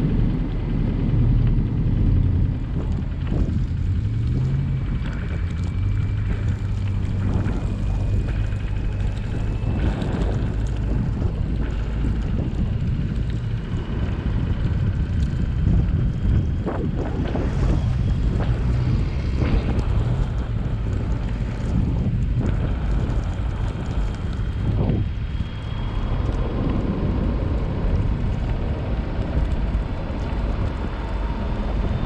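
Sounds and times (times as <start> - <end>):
car engine and tyres rumbling: 0.0 - 32.0.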